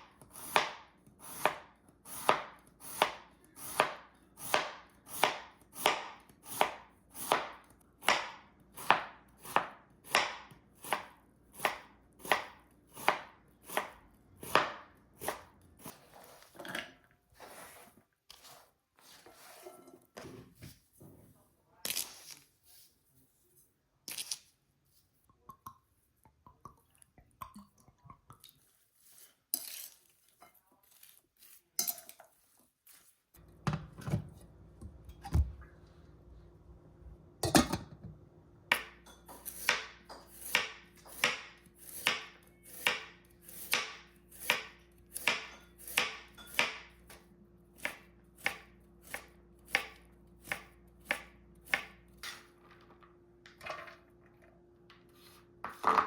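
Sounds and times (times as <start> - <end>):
knife chopping on cutting board: 0.2 - 15.9, 38.7 - 47.2, 47.8 - 52.0.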